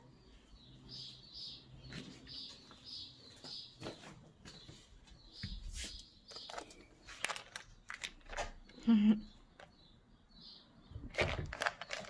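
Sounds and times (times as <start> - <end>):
small bird chirping: 0.0 - 12.0
footsteps on parquet floor: 1.9 - 6.0.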